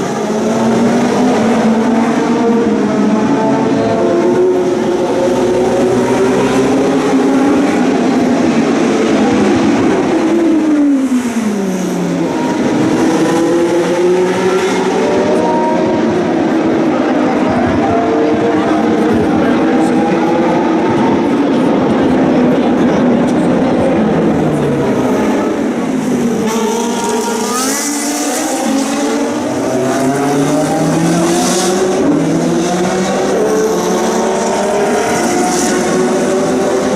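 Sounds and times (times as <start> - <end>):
race car engines at high revs: 0.0 - 36.9.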